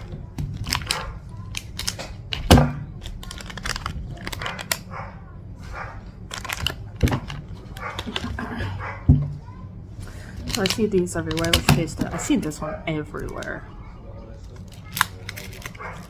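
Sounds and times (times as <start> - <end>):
plastic wrapper crinkling and tearing: 0.5 - 4.9, 6.2 - 8.3, 10.4 - 11.6, 14.4 - 16.0.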